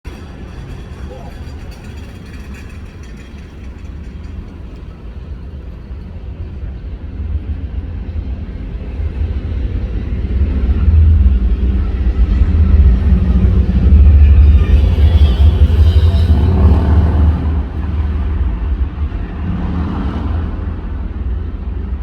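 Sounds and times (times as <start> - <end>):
city road traffic rumble: 0.1 - 22.0.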